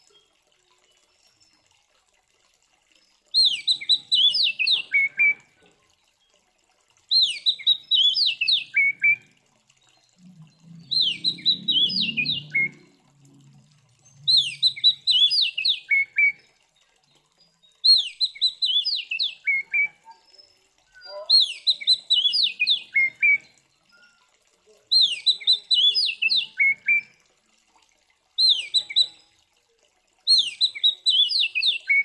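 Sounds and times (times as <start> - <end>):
bird singing sharp high notes: 10.8 - 12.8.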